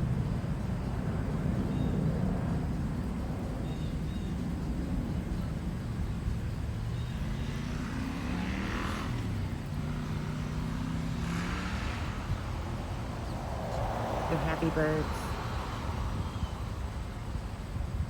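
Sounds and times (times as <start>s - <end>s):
motor traffic engine drone: 0.0s - 18.0s
vehicle rushing by: 6.2s - 18.0s.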